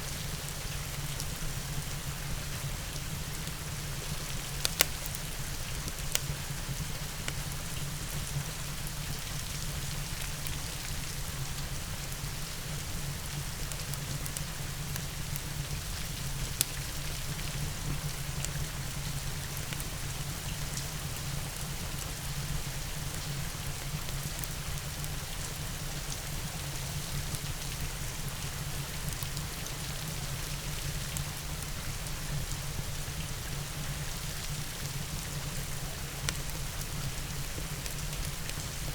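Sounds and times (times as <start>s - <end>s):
crackling wood fire: 0.0s - 38.9s
steady rain hiss: 0.0s - 38.9s
sharp pops from fire: 4.1s - 6.4s.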